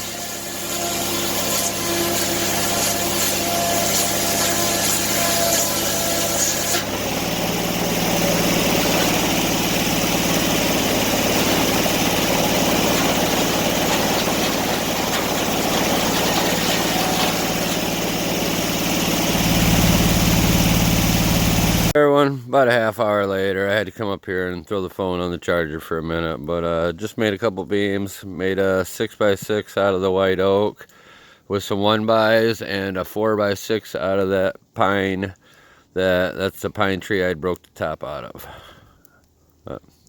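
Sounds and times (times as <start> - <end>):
engine running: 0.0 - 22.0
deep hum: 0.1 - 22.0.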